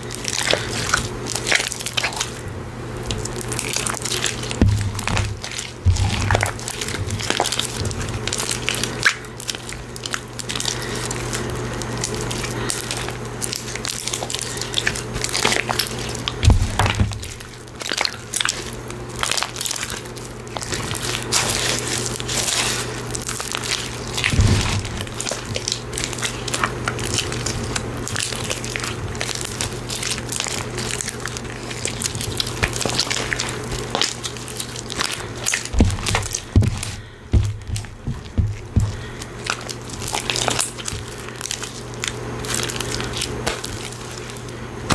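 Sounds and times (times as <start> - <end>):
slime squished by hand: 0.0 - 44.9
steady low hum: 0.0 - 44.9
heavy thumps: 4.6 - 8.2, 16.4 - 17.5, 24.3 - 25.3, 35.7 - 39.3.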